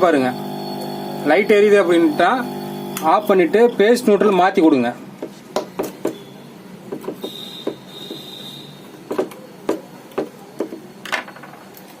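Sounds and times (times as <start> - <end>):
thin high whine: 0.0 - 4.2.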